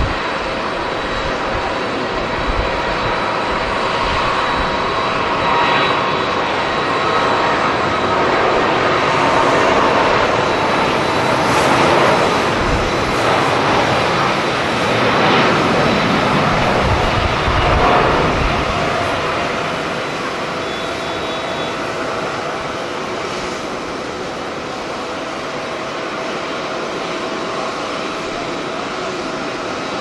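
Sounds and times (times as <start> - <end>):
wind on microphone: 0.0 - 20.4
jet engines rushing: 0.0 - 30.0.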